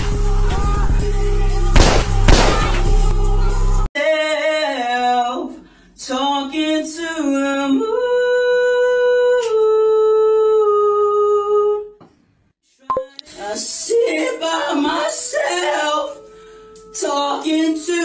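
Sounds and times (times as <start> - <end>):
person singing unaccompanied: 12.9 - 18.0.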